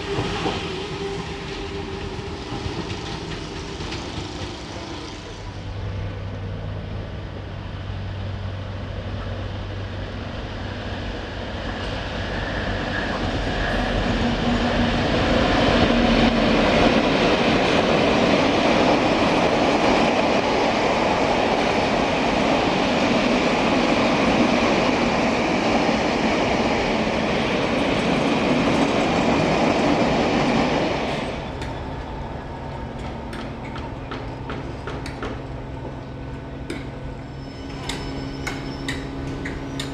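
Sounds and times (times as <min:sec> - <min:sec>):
train passing at speed: 0:00.0 - 0:39.9.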